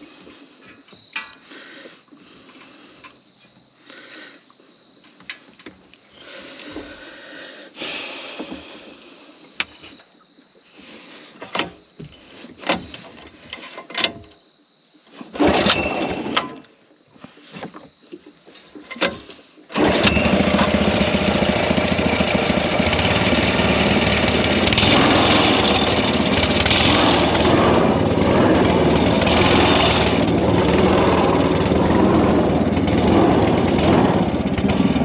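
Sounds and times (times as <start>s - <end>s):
knocks and clunks: 11.4s - 14.4s
rushing burst: 22.7s - 35.0s.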